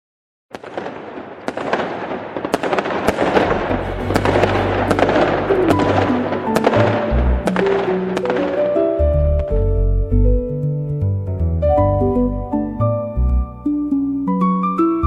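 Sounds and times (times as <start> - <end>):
dense crackling noise: 0.5 - 9.8
low bass tone: 3.5 - 7.6, 9.0 - 14.4.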